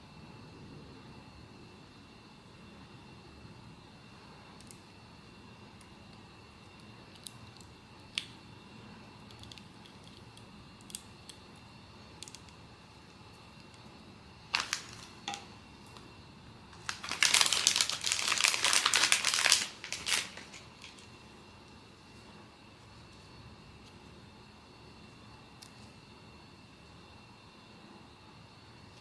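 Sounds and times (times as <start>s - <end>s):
plastic wrapping crinkling: 14.5s - 16.0s, 16.7s - 21.1s.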